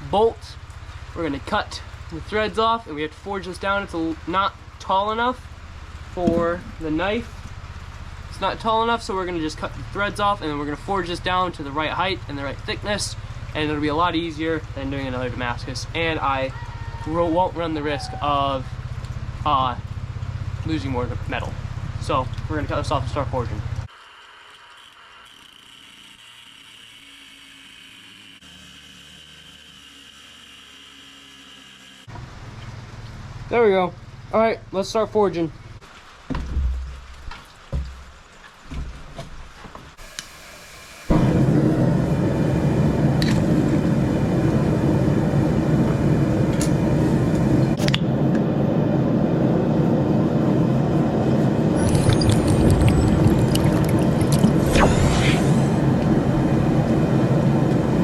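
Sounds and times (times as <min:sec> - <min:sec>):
power cutting tool whining: 0:24.0 - 0:32.1
forge rushing noise: 0:40.0 - 0:58.0.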